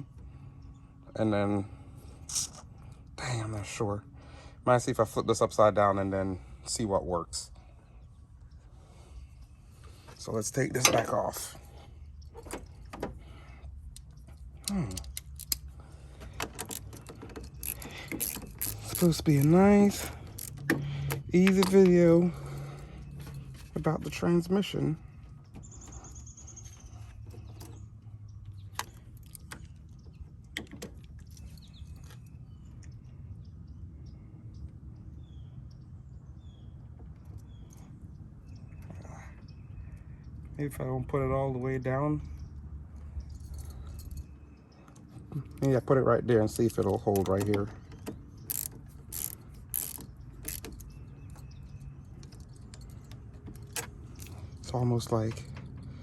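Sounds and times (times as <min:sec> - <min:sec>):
ratchet wrench clicks: 0:14.7 - 0:15.6, 0:16.7 - 0:21.8, 0:48.5 - 0:50.9.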